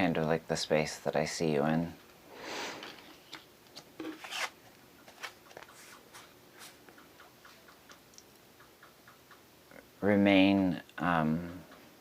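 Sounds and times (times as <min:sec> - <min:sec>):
faint small clicks and ticks: 0:06.9 - 0:09.8.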